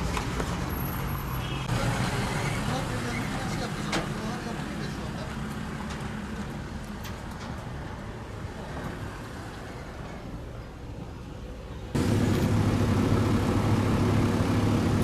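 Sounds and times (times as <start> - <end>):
outdoor background noise: 0.0 - 15.0
engine low rumble: 10.0 - 15.0.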